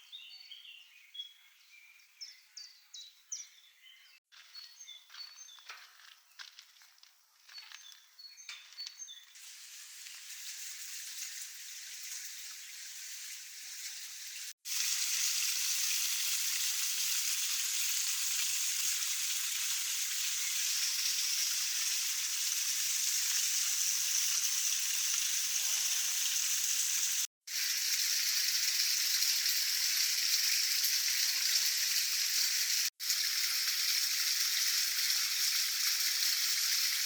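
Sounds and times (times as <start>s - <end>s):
bird chirps: 0.0s - 6.4s, 7.4s - 9.4s.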